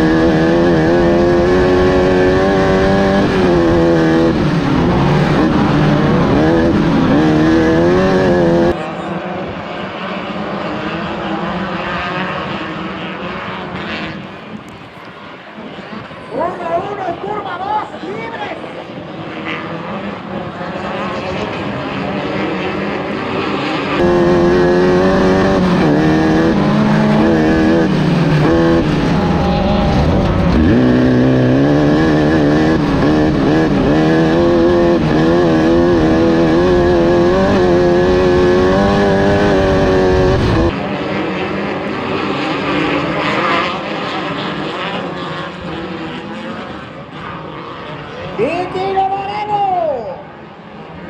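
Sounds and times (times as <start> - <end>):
race car engine revving: 0.0 - 14.8, 15.6 - 48.8
lower engine noise: 0.0 - 51.0.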